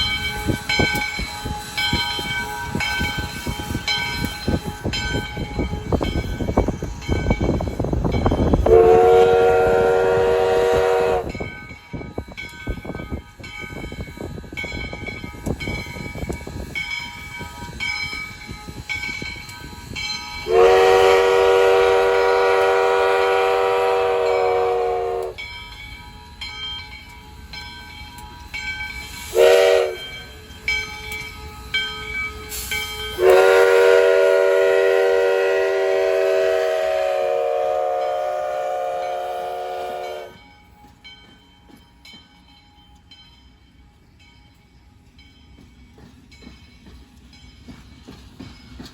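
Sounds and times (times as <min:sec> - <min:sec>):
steam locomotive chime whistle: 0:00.0 - 0:48.9
train rolling past: 0:00.0 - 0:48.9.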